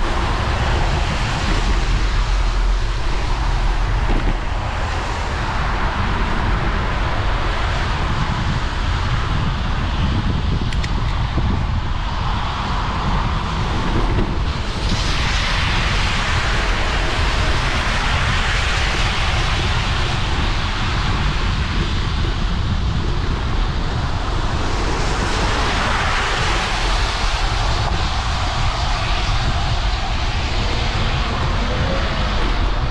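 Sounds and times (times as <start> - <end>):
wind rumble on microphone: 0.0 - 32.9
bicycle tyres hissing on wet road: 12.0 - 32.9.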